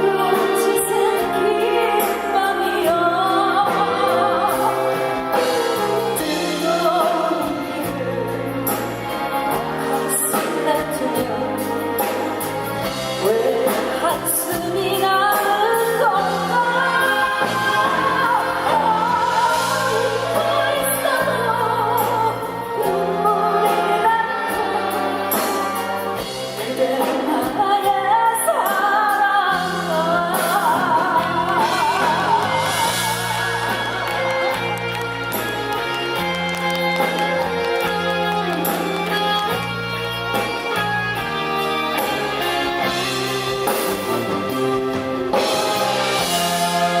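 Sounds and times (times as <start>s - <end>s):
woman singing with vibrato: 0.0s - 9.1s, 9.8s - 12.4s, 13.1s - 35.9s
band accompaniment: 0.0s - 47.0s
steady bass line: 29.6s - 47.0s.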